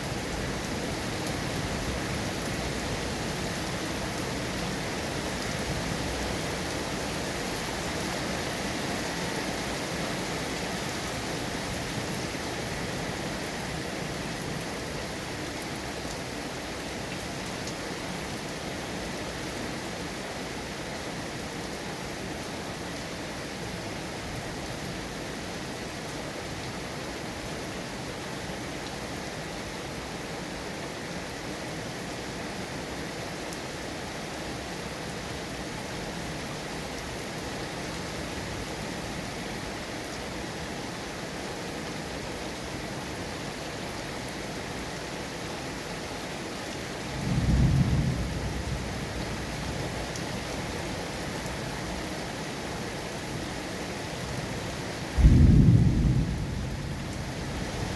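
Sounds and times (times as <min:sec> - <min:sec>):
heavy rain falling: 0:00.0 - 0:57.9
deep rumble of thunder: 0:47.2 - 0:49.9, 0:55.2 - 0:57.9.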